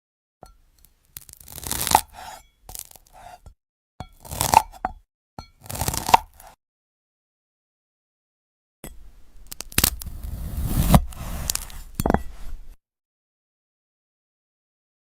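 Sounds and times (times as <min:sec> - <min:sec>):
knife slicing brittle fruit: 0:01.2 - 0:03.5, 0:04.1 - 0:04.8, 0:05.6 - 0:06.6, 0:09.5 - 0:12.0.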